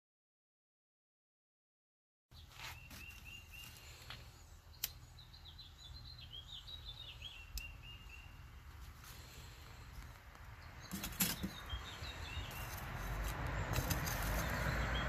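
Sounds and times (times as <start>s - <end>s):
small birds chirping: 2.3s - 15.0s.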